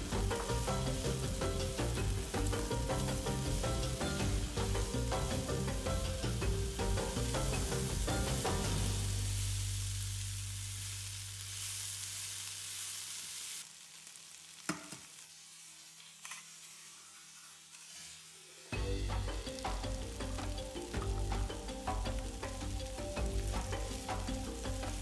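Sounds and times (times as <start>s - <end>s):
background music: 0.0s - 10.3s, 18.7s - 25.0s
food sizzling in a pan: 0.0s - 25.0s.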